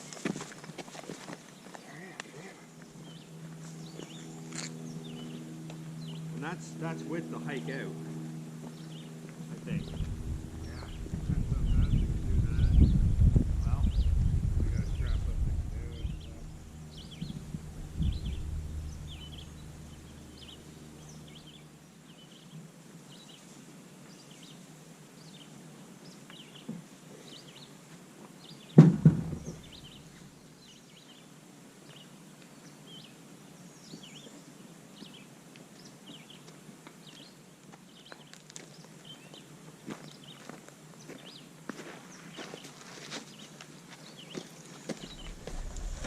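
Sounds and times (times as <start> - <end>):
small bird chirping: 8.7 - 22.5
heavy thump: 28.8 - 30.0.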